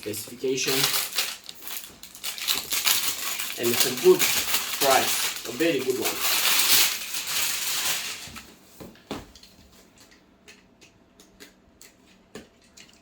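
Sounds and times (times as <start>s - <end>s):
packaging rustling: 0.0s - 8.6s.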